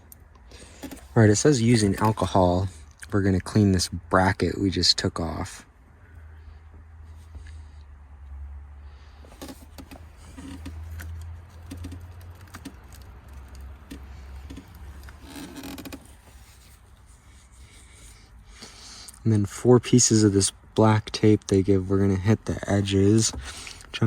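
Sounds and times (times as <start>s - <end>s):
rubbing: 9.4s - 18.2s.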